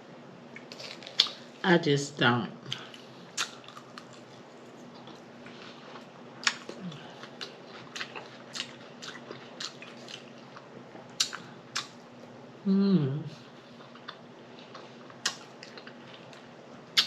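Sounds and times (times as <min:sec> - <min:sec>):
chewing with wet mouth clicks: 0:00.5 - 0:01.4, 0:02.7 - 0:12.0, 0:13.8 - 0:17.0.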